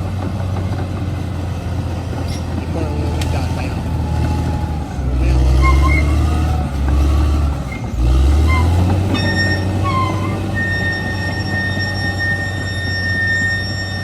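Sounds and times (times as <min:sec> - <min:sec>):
bulldozer diesel engine under load: 0:00.0 - 0:14.0
high-pitched squeals: 0:04.1 - 0:14.0.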